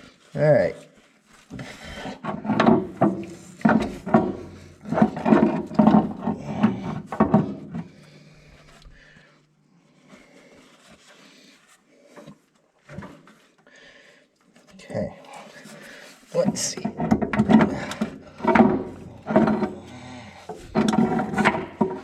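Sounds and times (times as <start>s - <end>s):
metal scraping and knocking: 1.6s - 7.9s, 16.4s - 22.0s.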